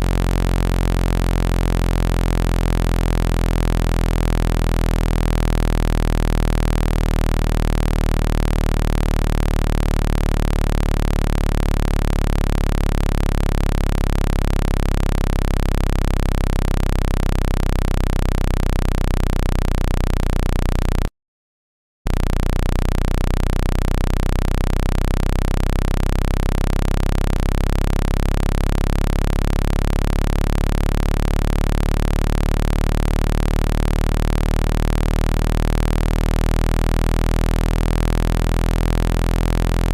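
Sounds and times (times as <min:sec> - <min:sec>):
low-pitched synthesized hum: 0:00.0 - 0:21.1, 0:22.1 - 0:39.9.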